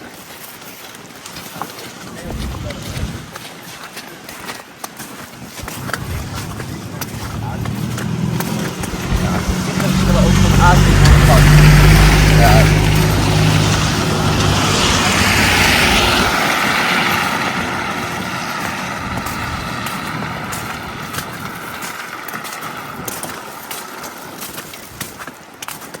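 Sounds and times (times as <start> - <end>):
motor vehicle passing by: 2.1 - 3.4, 5.6 - 24.0.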